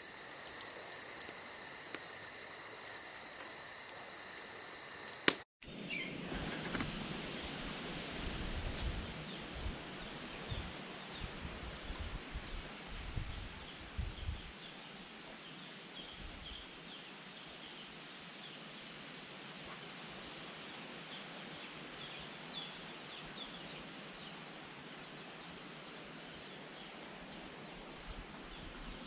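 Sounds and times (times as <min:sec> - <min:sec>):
small birds chirping: 0:00.0 - 0:05.4
steady rainforest hiss: 0:00.0 - 0:05.4.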